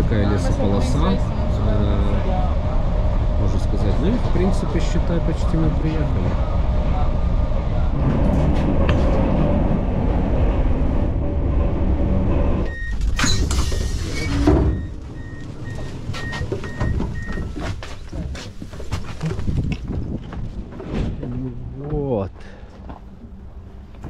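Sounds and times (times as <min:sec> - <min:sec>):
train rumble: 0:00.0 - 0:24.0
door signal beeps: 0:12.6 - 0:17.7.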